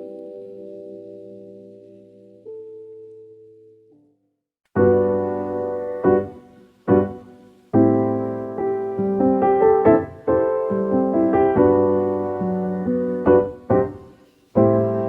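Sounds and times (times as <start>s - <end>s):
slow piano chords: 0.0s - 4.1s, 4.8s - 15.0s.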